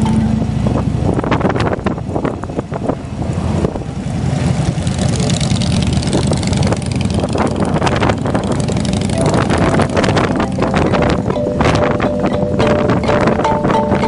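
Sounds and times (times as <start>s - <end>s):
engine crackle: 0.0s - 13.2s
motorcycle engine running: 4.2s - 14.0s.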